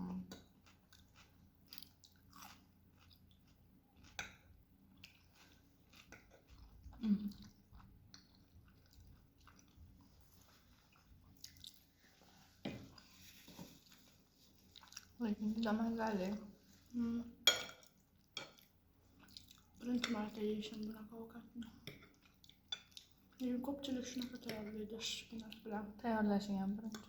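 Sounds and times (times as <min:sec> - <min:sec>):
person chewing noodles: 0:00.3 - 0:15.2, 0:17.8 - 0:19.8, 0:21.8 - 0:23.4.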